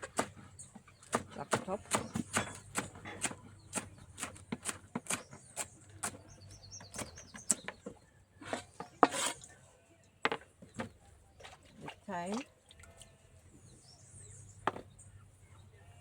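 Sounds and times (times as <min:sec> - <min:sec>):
birds chirping faintly: 0:00.0 - 0:16.0
knife chopping on cutting board: 0:01.1 - 0:05.3, 0:08.4 - 0:09.4.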